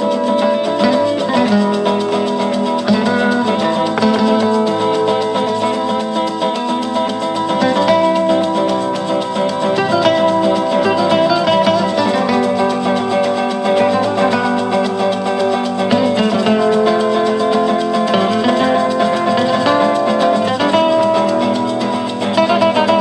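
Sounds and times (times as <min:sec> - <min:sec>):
light shaker: 0:00.0 - 0:23.0
plucked guitars strumming: 0:00.0 - 0:23.0.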